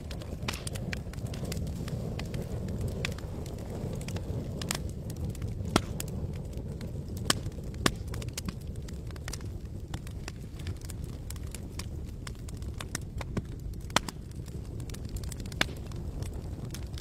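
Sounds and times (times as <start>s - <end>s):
campfire crackling and popping: 0.0s - 17.0s
low rumble of burning wood: 0.0s - 17.0s.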